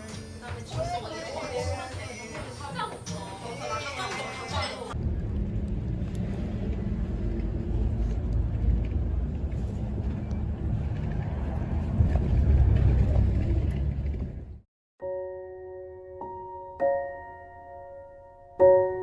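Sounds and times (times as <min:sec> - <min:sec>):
moving vehicle rumble: 0:03.0 - 0:14.6.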